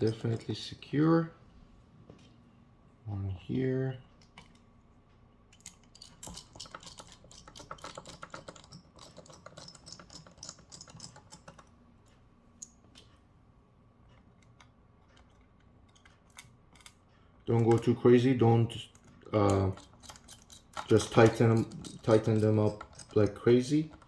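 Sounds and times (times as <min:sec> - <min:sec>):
screwdriver metallic clicks: 0:18.9 - 0:24.0.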